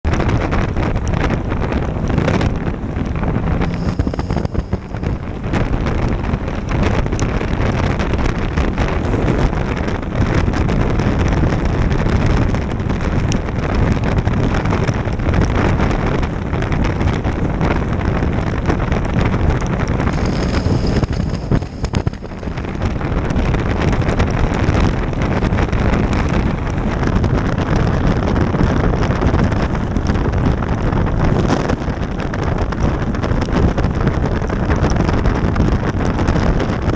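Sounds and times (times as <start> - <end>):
wind buffeting microphone: 0.0 - 36.9
road noise: 0.1 - 36.9
motorcycle engine: 0.4 - 10.3, 19.9 - 30.2.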